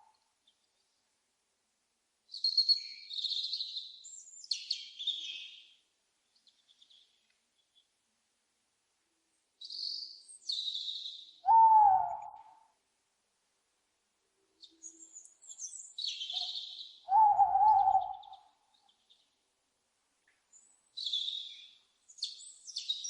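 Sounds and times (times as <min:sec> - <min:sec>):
owl hoot: 0:11.4 - 0:12.6, 0:16.3 - 0:18.5.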